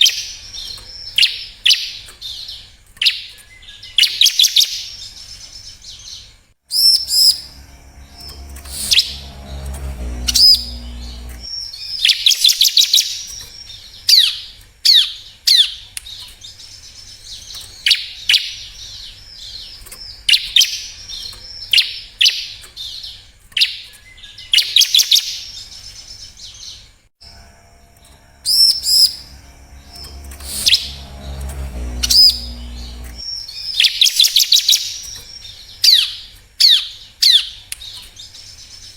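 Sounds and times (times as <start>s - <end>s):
low hum: 6.7s - 11.5s, 27.2s - 33.3s.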